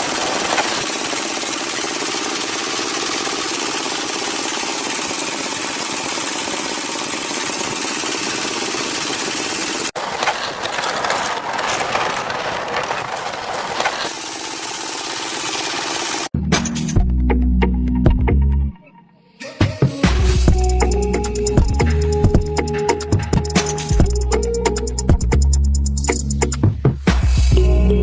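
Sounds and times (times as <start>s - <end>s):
small engine running: 0.0s - 16.3s, 20.4s - 25.6s.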